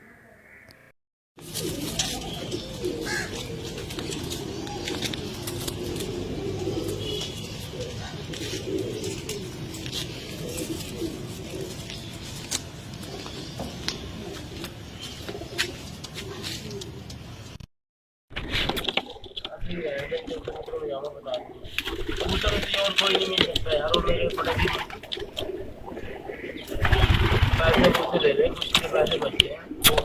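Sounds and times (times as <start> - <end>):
pigeons cooing: 1.4 - 17.3, 24.0 - 30.0.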